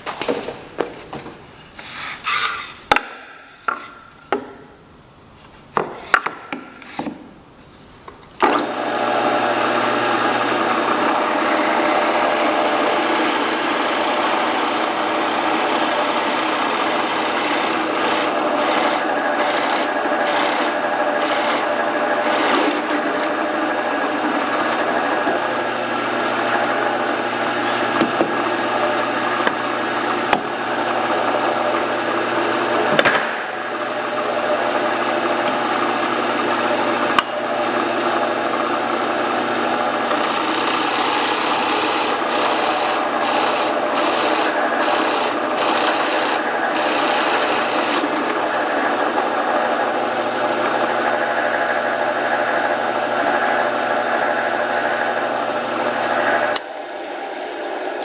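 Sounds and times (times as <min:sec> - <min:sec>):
woodworking power tool running: 0:00.0 - 0:04.7, 0:05.8 - 0:07.3, 0:08.4 - 0:58.0
wooden pieces knocking: 0:32.9 - 0:33.6.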